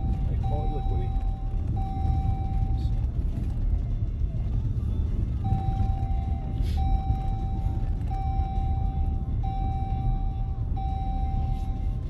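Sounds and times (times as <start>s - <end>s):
seatbelt warning chime beeps: 0.0s - 2.9s, 5.4s - 12.0s
car driving rumble: 0.0s - 12.0s.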